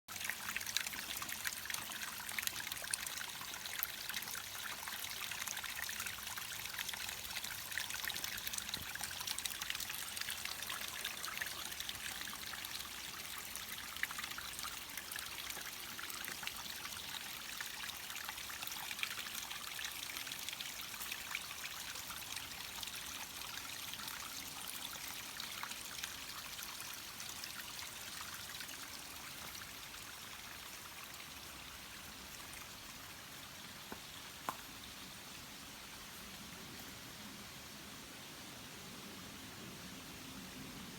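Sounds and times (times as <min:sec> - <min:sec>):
stream trickling and babbling: 0:00.1 - 0:40.9.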